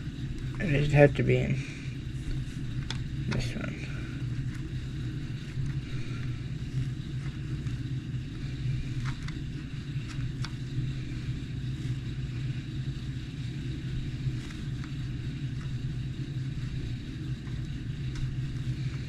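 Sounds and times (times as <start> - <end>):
motor humming: 0.0 - 19.0.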